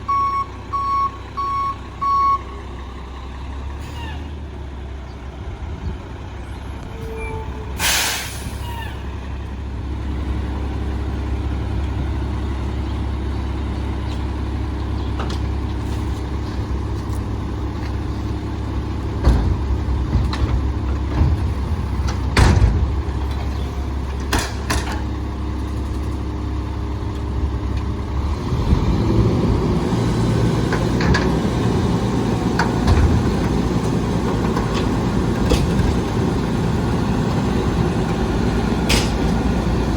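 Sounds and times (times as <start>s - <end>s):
diesel engine running: 0.0s - 39.9s
air brake hiss: 7.8s - 8.9s.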